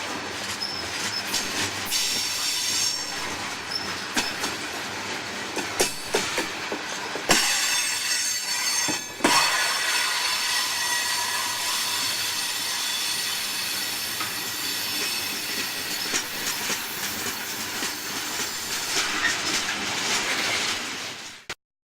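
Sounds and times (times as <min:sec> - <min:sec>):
wheels clacking over rail joints: 0:00.4 - 0:12.2, 0:13.2 - 0:21.4
train wheels squealing: 0:00.5 - 0:04.5, 0:07.3 - 0:20.8.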